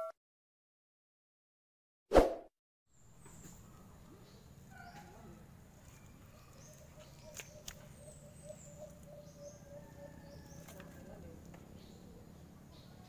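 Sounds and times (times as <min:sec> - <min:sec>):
small birds chirping: 0:03.0 - 0:13.0.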